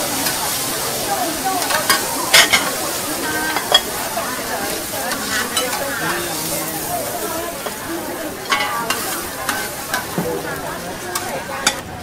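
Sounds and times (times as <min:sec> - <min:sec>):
noodles sizzling in oil: 0:00.0 - 0:12.0
metal spatulas clacking on pan: 0:01.6 - 0:02.8, 0:03.4 - 0:04.0, 0:05.0 - 0:06.4, 0:08.4 - 0:10.4, 0:11.1 - 0:11.9.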